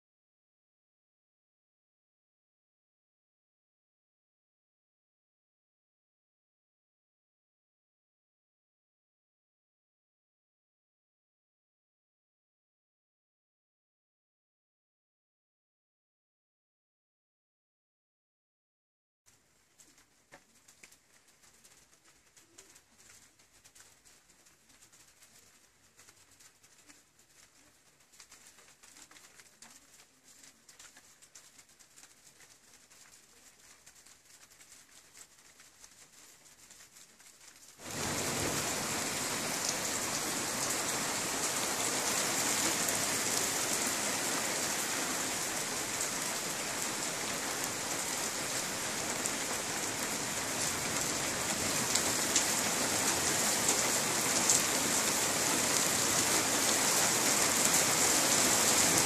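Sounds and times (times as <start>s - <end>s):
heavy rain downpour: 19.3s - 59.0s.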